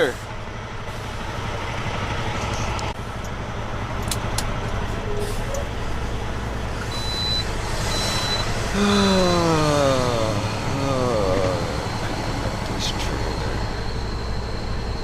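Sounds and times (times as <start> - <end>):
diesel truck engine running: 0.0 - 15.0
high electronic beeps: 6.9 - 8.5.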